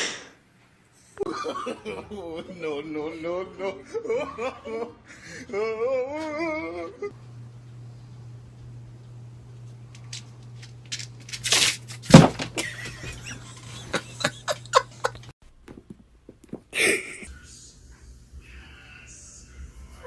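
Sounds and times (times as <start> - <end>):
steady low hum: 6.9 - 15.3, 16.0 - 20.0.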